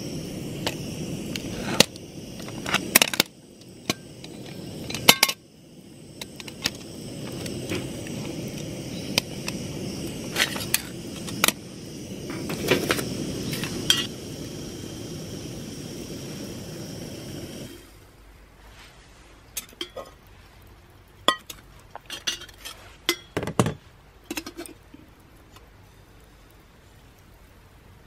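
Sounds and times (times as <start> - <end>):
steady rushing noise: 0.0 - 19.2.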